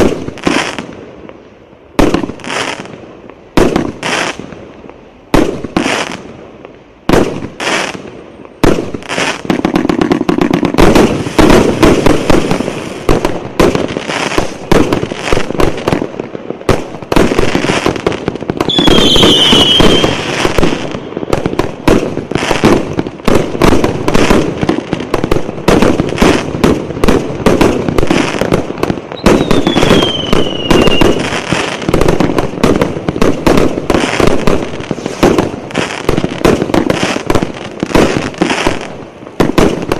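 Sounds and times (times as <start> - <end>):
firework bangs and crackling: 0.0 - 39.9
falling firework whistles: 18.6 - 21.5, 29.1 - 32.0, 33.9 - 36.1.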